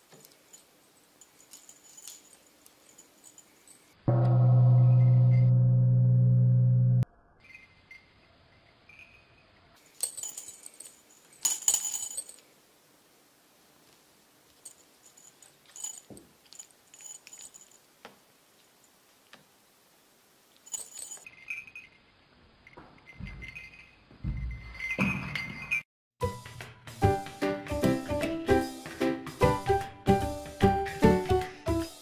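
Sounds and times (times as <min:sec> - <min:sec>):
small bell jingling: 0:00.0 - 0:04.0, 0:07.4 - 0:12.5, 0:14.5 - 0:18.0, 0:20.5 - 0:25.9.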